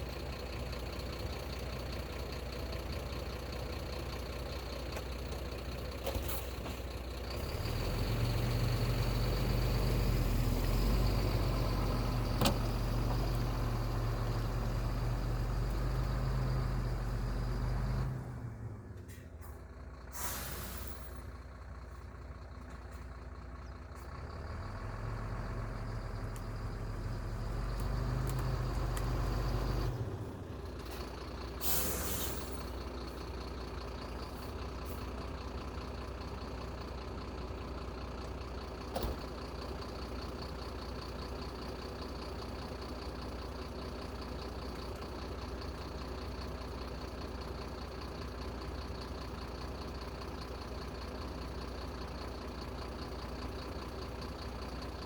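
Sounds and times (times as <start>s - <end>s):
diesel engine running: 0.0s - 55.0s
air hiss: 20.2s - 21.0s
click: 27.8s - 29.1s.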